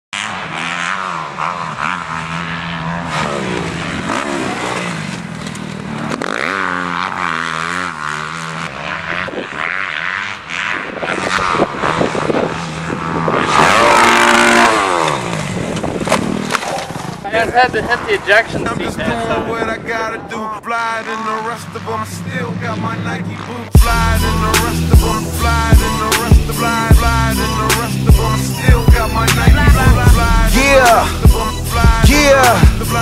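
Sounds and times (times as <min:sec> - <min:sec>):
dirt bike engines revving: 0:00.2 - 0:33.0.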